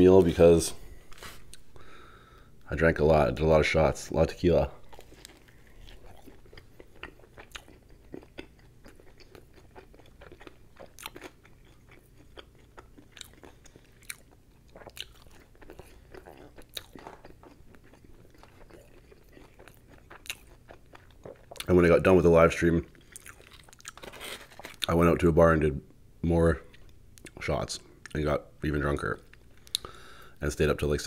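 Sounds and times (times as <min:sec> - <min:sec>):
chewing crispy food: 0:04.8 - 0:25.0.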